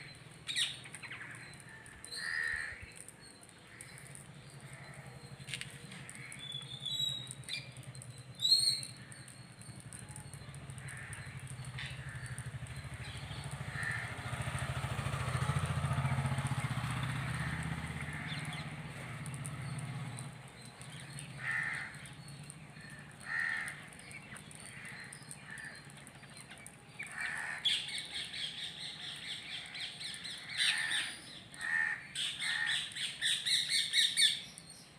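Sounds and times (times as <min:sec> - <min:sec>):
crows cawing: 0:01.0 - 0:03.0, 0:03.6 - 0:05.3, 0:06.0 - 0:06.5, 0:10.6 - 0:19.8, 0:21.1 - 0:33.6.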